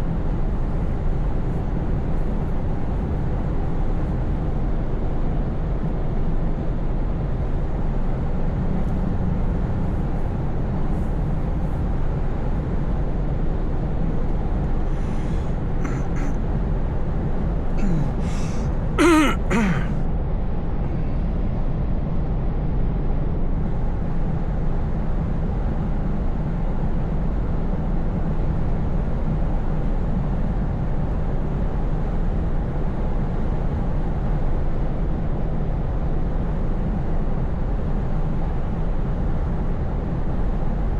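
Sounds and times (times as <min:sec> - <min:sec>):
road noise: 0:08.2 - 0:20.0.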